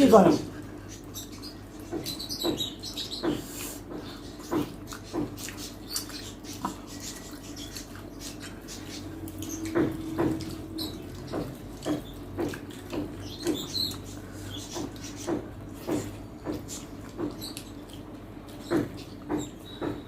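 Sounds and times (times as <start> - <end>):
wet chewing and lip smacks: 3.2 - 19.3.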